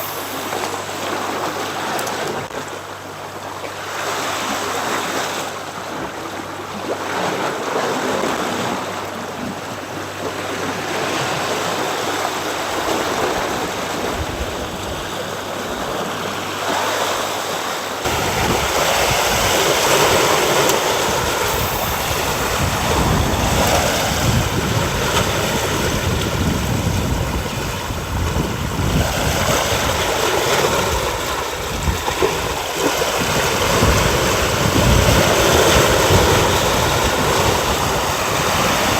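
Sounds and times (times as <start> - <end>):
waves washing against rocks: 3.8 - 38.9
low rumble: 21.0 - 26.8.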